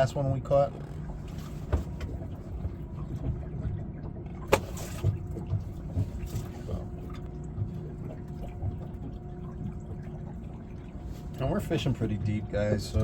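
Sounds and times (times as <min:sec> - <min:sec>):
steady low hum: 0:00.0 - 0:13.0
water sloshing against boat: 0:00.0 - 0:13.0
knocks on boat: 0:01.6 - 0:03.5.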